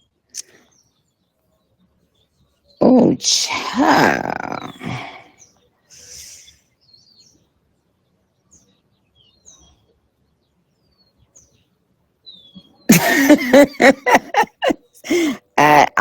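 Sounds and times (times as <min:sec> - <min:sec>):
small birds chirping: 0:00.0 - 0:16.0
loud person's voice: 0:02.8 - 0:05.1, 0:15.1 - 0:16.0.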